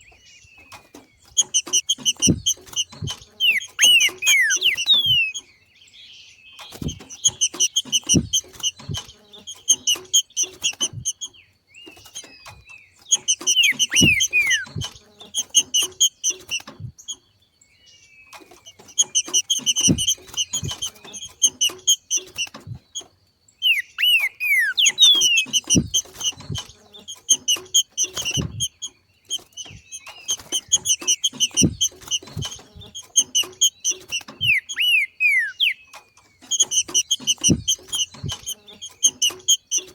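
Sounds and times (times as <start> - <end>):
bird whistled slurs and chatter: 0.0 - 5.5, 6.6 - 16.9, 23.6 - 39.9
low thumps: 1.3 - 5.3, 19.7 - 21.0, 25.5 - 26.8.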